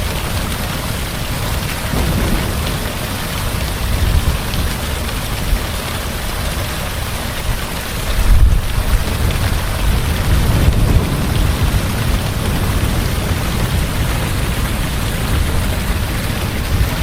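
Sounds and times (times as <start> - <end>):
heavy rain: 0.0 - 17.0
low thunder rumbling: 0.2 - 17.0.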